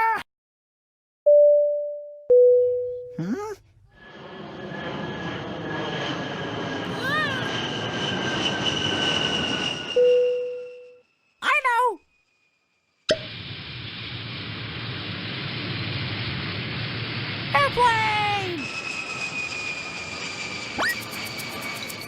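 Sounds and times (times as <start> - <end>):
rushing vehicle noise with whine: 18.6 - 22.0
short sliding squawk: 20.8 - 22.0.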